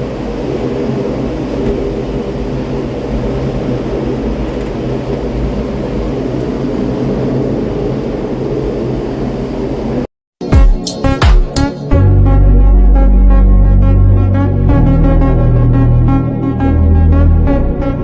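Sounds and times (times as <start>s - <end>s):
steady mechanical hum: 0.0s - 10.1s
steady low tones: 0.0s - 18.0s.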